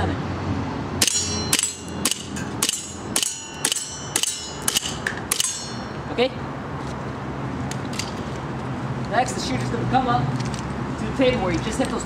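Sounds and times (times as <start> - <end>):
pellets pinging on steel targets: 1.0 - 6.0.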